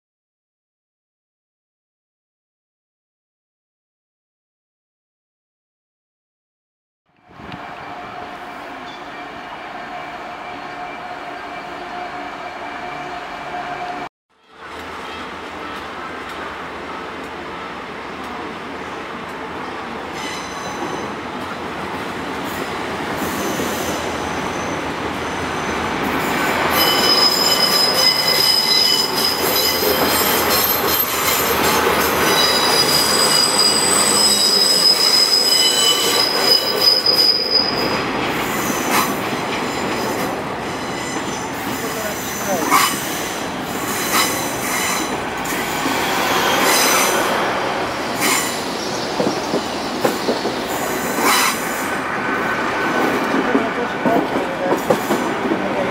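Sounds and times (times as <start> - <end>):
train running noise: 7.2 - 55.9
train wheels squealing: 20.1 - 21.2, 22.5 - 51.9
train clunking over rail joints: 37.9 - 51.8, 52.8 - 55.9.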